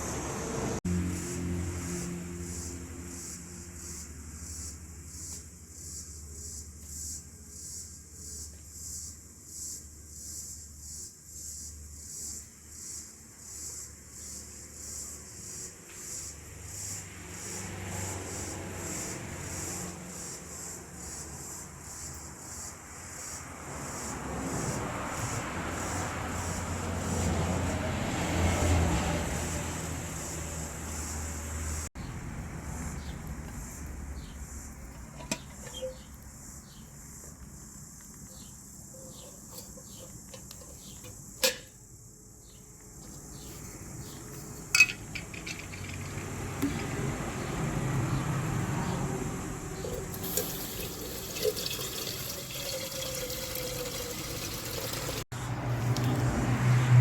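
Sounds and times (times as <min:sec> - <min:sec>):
high insect drone: 0:00.1 - 0:53.4
faint bird chirps: 0:35.4 - 0:36.9
tableware clinking: 0:44.7 - 0:46.2.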